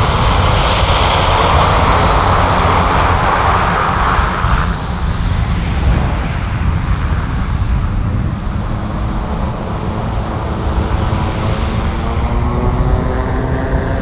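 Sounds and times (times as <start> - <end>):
aircraft engine rumble: 0.0 - 14.0.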